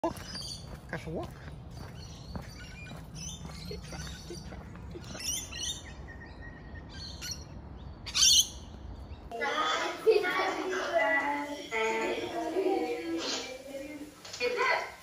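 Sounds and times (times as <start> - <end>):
birds chirping and calling: 0.0 - 9.3.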